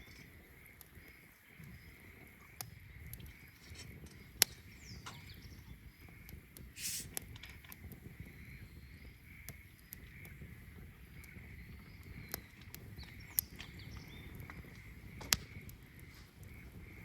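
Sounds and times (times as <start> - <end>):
wood fire crackling: 0.0 - 8.2, 9.1 - 17.0
brief hiss: 6.8 - 7.2.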